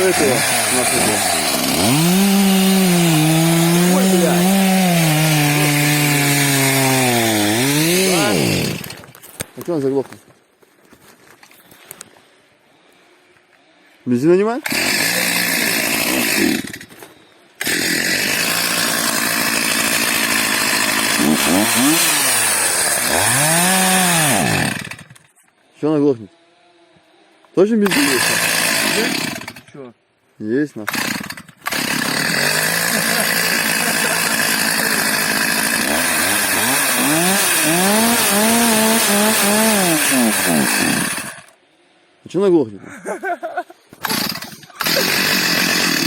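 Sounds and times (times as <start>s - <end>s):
chainsaw running and revving: 0.0s - 9.0s, 14.6s - 16.9s, 17.6s - 25.2s, 27.8s - 29.7s, 30.8s - 41.6s, 44.0s - 46.0s.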